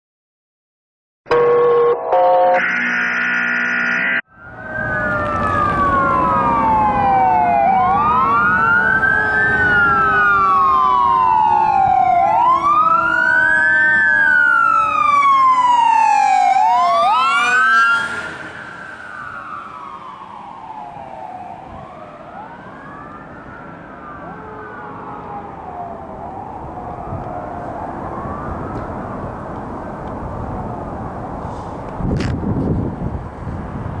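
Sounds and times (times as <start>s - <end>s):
fire engine siren wailing: 1.3s - 3.1s, 4.0s - 32.2s
truck engine rumble: 4.4s - 14.7s, 25.1s - 34.0s.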